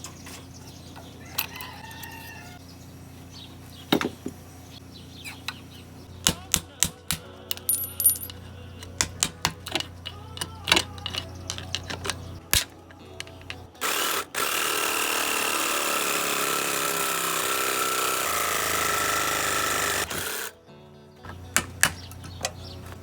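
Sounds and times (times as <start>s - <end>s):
metal tools clinking: 7.5s - 13.8s.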